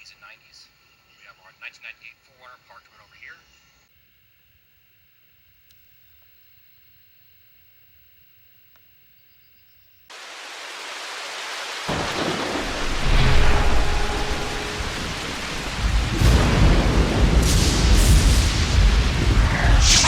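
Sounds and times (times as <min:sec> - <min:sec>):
rain-like hiss: 0:10.1 - 0:20.0
thunder rumbling: 0:11.9 - 0:20.0.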